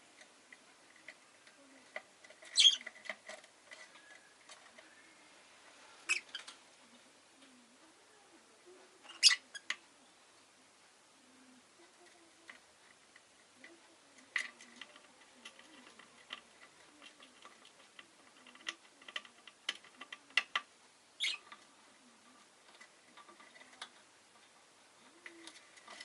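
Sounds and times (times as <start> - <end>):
bird clicks and ticks: 12.4 - 21.7.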